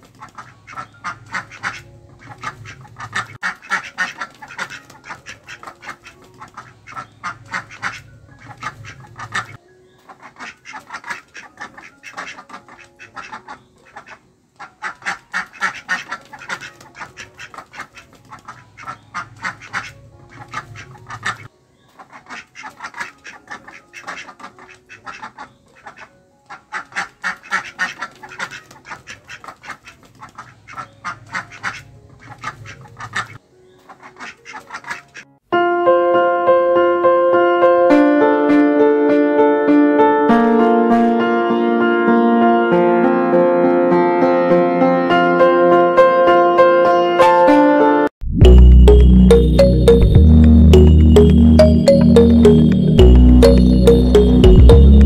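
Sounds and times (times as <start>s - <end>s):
ducks quacking: 0.1s - 35.3s
piano music: 35.4s - 55.0s.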